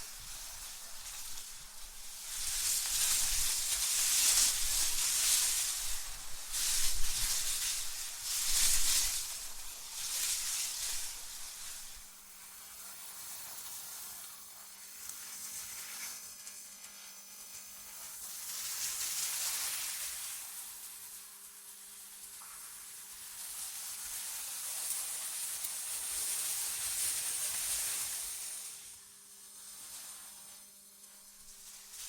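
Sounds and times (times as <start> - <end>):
cold wind hissing in gusts: 0.0 - 12.5.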